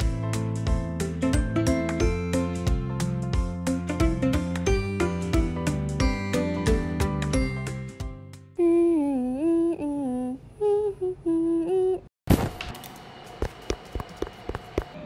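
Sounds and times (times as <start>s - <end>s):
music: 0.0s - 8.6s
person humming a gliding tune: 8.6s - 12.1s.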